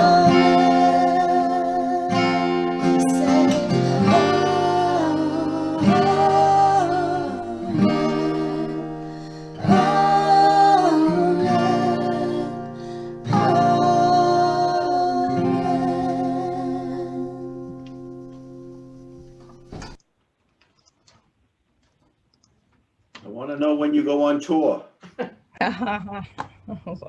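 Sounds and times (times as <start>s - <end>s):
person singing: 0.0s - 17.8s
strummed acoustic guitar: 0.0s - 20.0s.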